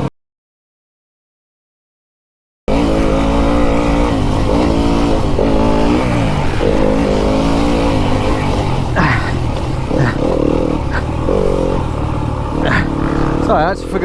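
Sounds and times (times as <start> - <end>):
rushing noise: 2.7 - 13.5
dirt bike engine revving: 2.7 - 14.0.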